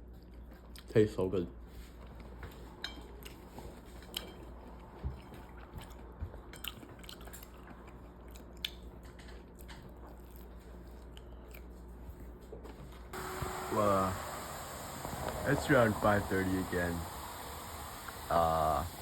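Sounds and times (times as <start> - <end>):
steady low hum: 1.5 - 19.0
person chewing food: 2.0 - 13.0.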